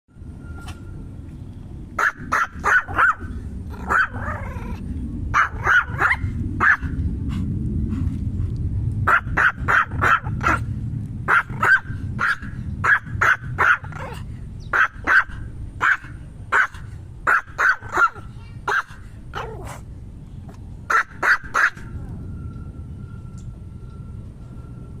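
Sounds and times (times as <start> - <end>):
steady low rumble: 0.1 - 25.0
small dog yapping: 2.0 - 7.0, 9.1 - 10.6, 11.3 - 19.8, 20.9 - 22.0.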